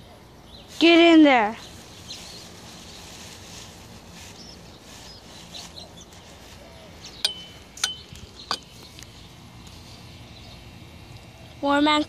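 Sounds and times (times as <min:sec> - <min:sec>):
high bird chirps: 0:04.3 - 0:10.7.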